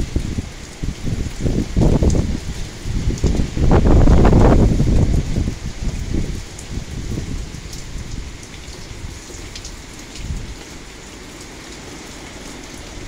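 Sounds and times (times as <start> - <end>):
gusting wind rumble: 0.0 - 9.2
heavy rain falling: 0.0 - 13.0.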